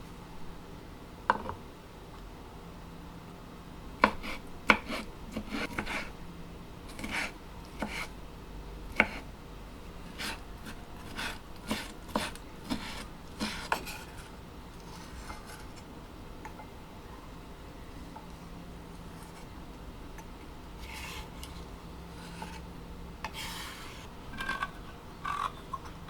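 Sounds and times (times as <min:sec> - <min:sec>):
scraping and rubbing strokes: 0:23.3 - 0:24.1.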